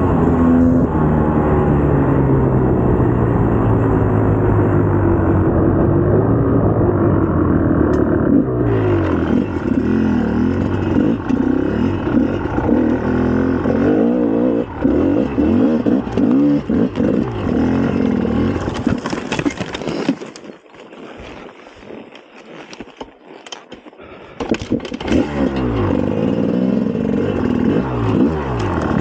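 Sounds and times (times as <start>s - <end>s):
dirt bike engine revving: 0.0s - 19.0s, 24.7s - 29.0s.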